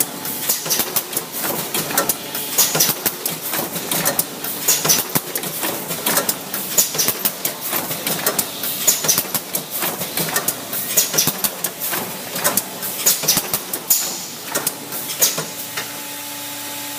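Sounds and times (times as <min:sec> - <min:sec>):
machine sharp clacks: 0:00.0 - 0:15.9
packaging machine running: 0:00.0 - 0:16.9.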